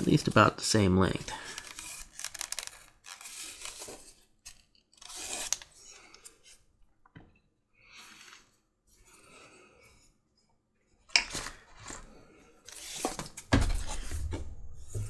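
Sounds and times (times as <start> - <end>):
strap cutter slicing leather: 5.0 - 5.8.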